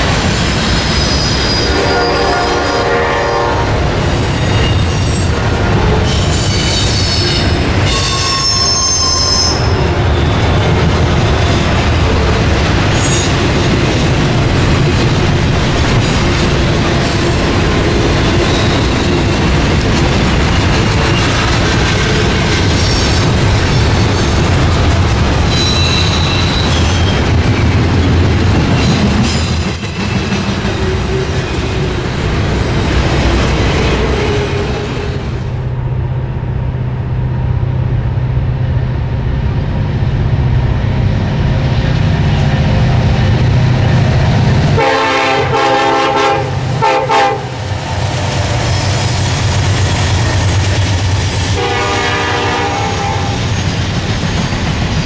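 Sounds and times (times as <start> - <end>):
diesel locomotive engine drone: 0.0 - 55.0
freight cars rolling on rails: 0.0 - 55.0
train air horn blasts: 1.5 - 3.8, 7.0 - 9.7, 44.8 - 47.6, 51.6 - 53.4.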